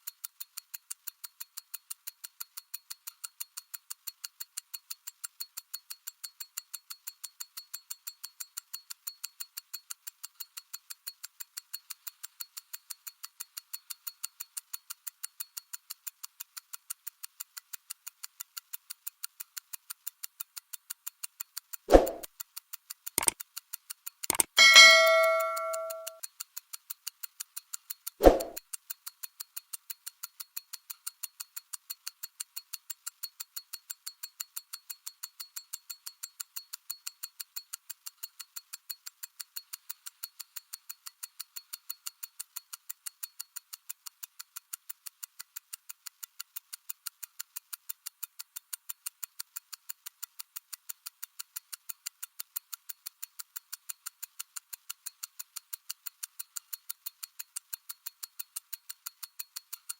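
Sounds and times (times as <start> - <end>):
mechanical watch ticking: 0.0 - 59.9.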